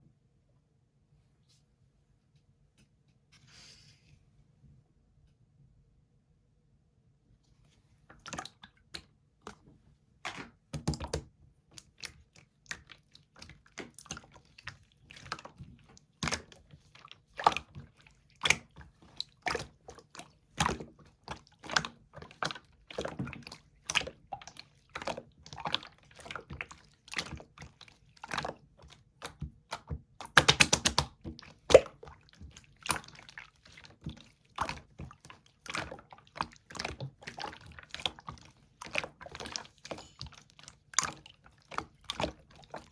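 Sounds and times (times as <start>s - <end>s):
slime squished by hand: 10.2s - 42.9s.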